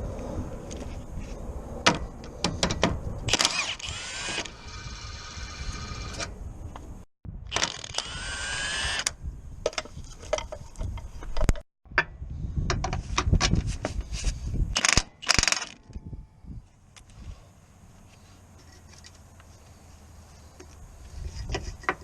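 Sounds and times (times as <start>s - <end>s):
power tool motor whining: 3.3s - 6.2s, 7.5s - 9.2s
metallic clicks and ratcheting: 14.8s - 15.9s.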